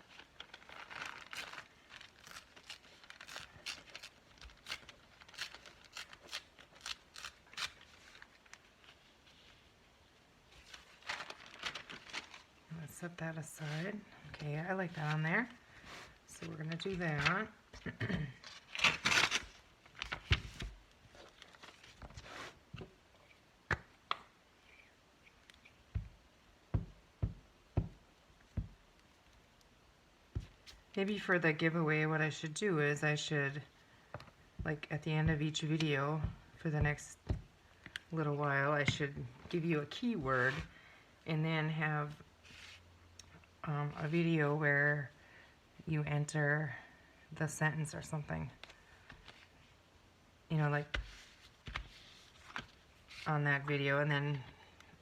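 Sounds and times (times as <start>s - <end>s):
paper rustling: 0.0s - 9.7s, 10.5s - 12.6s, 18.3s - 23.4s, 50.9s - 53.3s.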